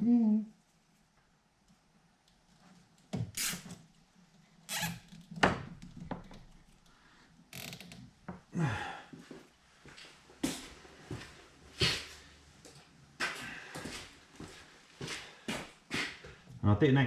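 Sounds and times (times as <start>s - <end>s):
short scraping hiss: 3.4s - 3.7s.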